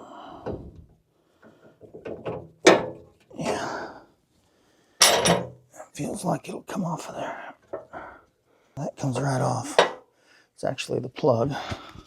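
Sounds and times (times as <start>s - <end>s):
knocks and clicks of metal parts: 1.4s - 3.2s, 5.0s - 5.6s, 9.2s - 10.0s.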